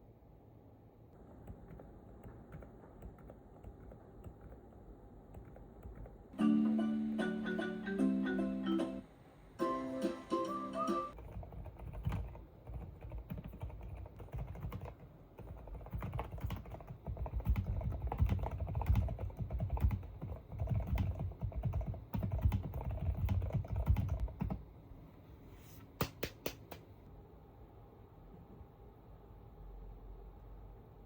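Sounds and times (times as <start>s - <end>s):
typing on a keyboard: 1.4s - 4.7s, 5.3s - 6.2s, 11.2s - 24.6s.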